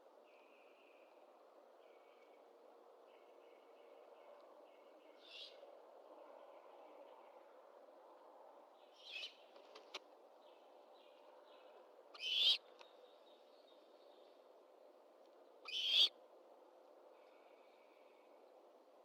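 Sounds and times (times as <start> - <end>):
owl screeching: 12.2 - 12.6, 15.6 - 16.1.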